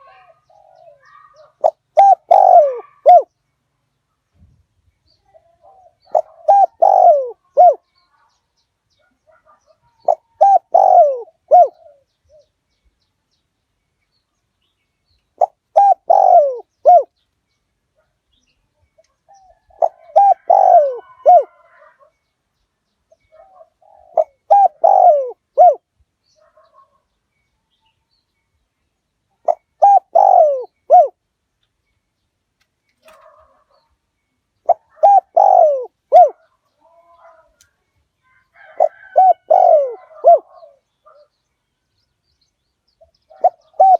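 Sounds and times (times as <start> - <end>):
dove cooing: 0.0 - 3.3, 5.4 - 7.8, 9.3 - 12.5, 15.4 - 17.1, 19.3 - 22.1, 23.2 - 26.9, 29.4 - 31.2, 34.6 - 37.6, 38.6 - 41.3, 43.1 - 43.9.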